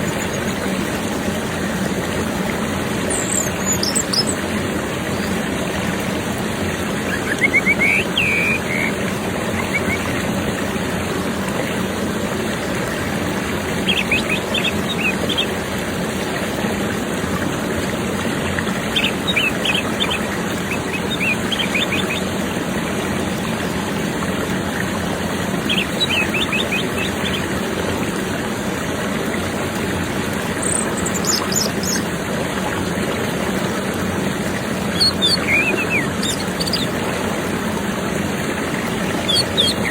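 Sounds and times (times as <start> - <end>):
thrush song chirps: 3.1 - 4.4, 7.0 - 10.2, 13.8 - 15.6, 18.9 - 22.3, 25.6 - 27.5, 30.5 - 32.1, 34.9 - 37.0, 39.1 - 39.9.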